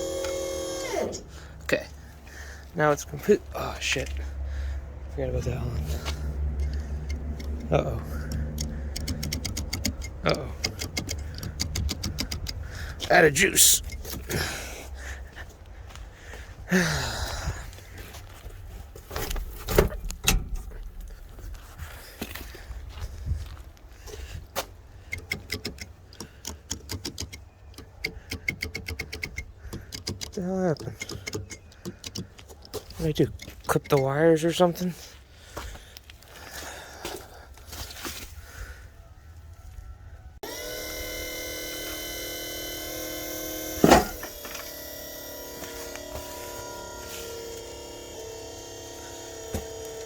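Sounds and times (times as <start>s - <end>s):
electric motor whining: 0.0s - 1.4s, 5.8s - 14.5s, 40.4s - 50.0s
rapid electrical relay clicking: 6.1s - 14.4s, 25.0s - 34.8s, 40.4s - 50.0s.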